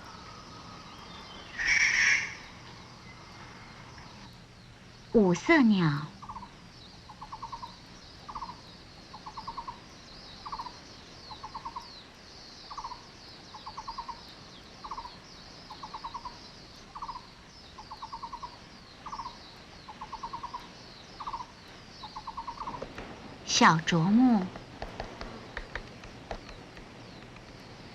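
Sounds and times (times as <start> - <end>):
barbet calling: 0.0 - 3.7, 5.8 - 12.0, 12.7 - 22.8
faint high chirping: 0.0 - 24.7.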